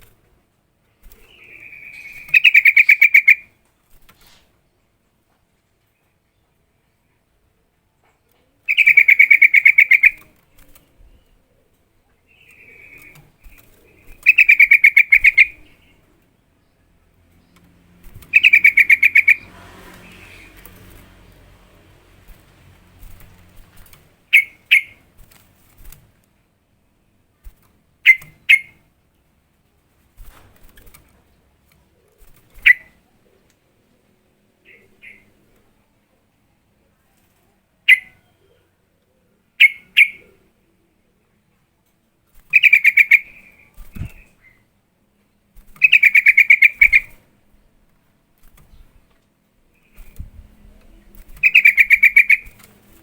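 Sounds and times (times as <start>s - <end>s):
bird chattering call: 1.5s - 3.5s, 8.7s - 10.2s, 14.2s - 15.8s, 18.3s - 19.5s, 24.3s - 25.0s, 28.0s - 28.8s, 37.9s - 38.2s, 39.6s - 40.3s, 42.5s - 43.7s, 45.8s - 47.2s, 51.4s - 52.6s.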